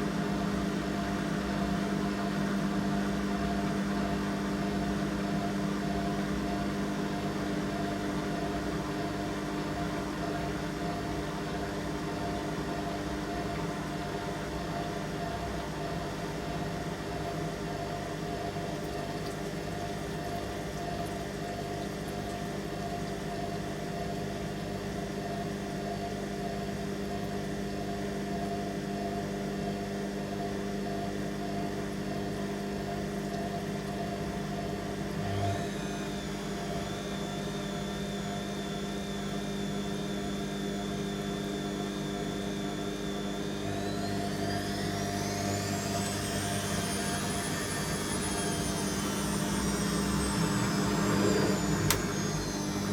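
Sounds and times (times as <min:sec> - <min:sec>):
washing machine motor hum: 0:00.0 - 0:52.9
high whine rising in pitch: 0:34.2 - 0:52.9.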